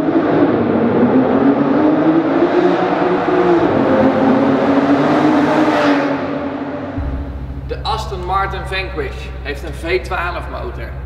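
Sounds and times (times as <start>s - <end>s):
car engine echoing in tunnel: 0.0s - 11.0s.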